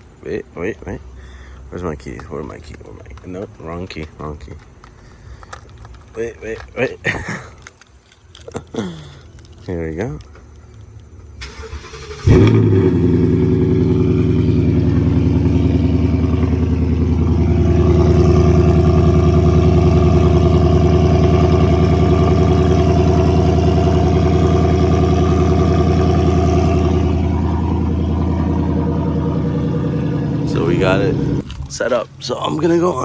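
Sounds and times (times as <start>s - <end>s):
car engine idling: 9.0s - 33.0s
car engine starting with loud burst: 11.4s - 31.5s.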